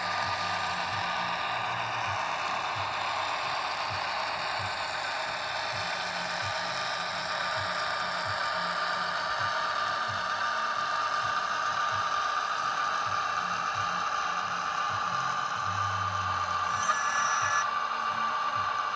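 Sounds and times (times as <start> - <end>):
diesel engine sound from speaker: 0.0 - 18.9
model train whine and rattle: 0.0 - 18.9
brief high tone: 16.6 - 17.7.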